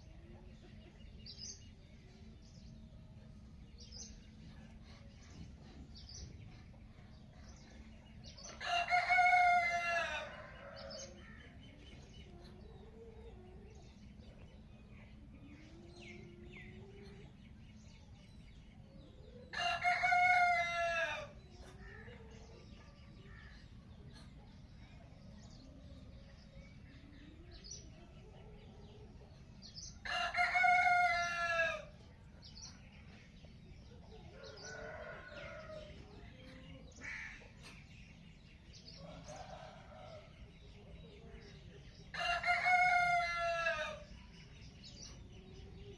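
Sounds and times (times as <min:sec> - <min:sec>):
low background noise: 0:00.0 - 0:45.9
small birds chirping: 0:00.0 - 0:45.9
rooster crowing: 0:42.1 - 0:44.0.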